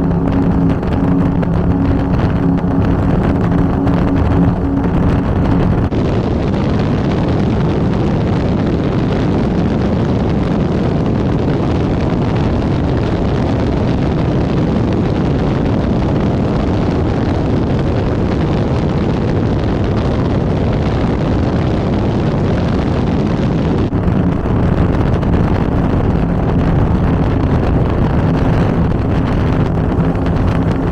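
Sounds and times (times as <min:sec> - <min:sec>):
powerboat engine: 0:00.0 - 0:05.9, 0:23.8 - 0:30.9
water noise against hull: 0:00.0 - 0:30.9
wind on microphone: 0:00.0 - 0:30.9.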